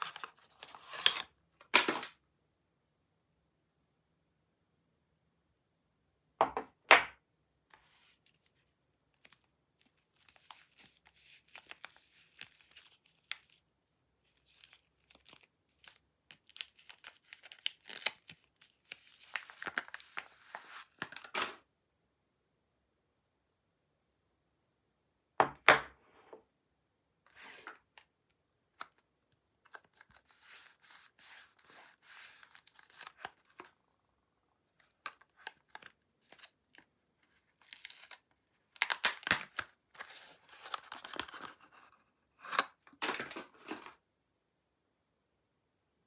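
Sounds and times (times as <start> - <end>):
packaging ripping: 16.4 - 20.1, 37.6 - 41.4
packaging crinkling: 37.6 - 41.5.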